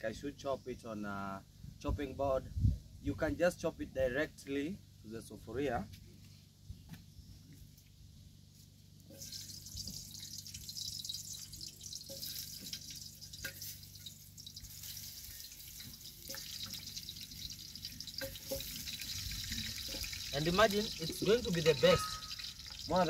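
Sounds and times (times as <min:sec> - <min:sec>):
onion sizzling in a pan: 0:09.1 - 0:23.0.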